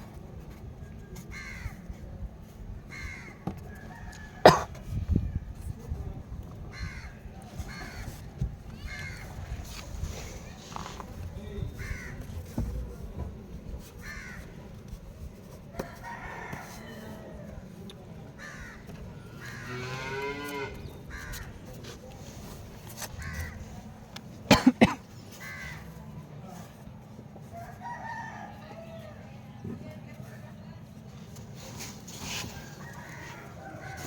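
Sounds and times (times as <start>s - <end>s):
rooster crowing: 32.6s - 34.0s.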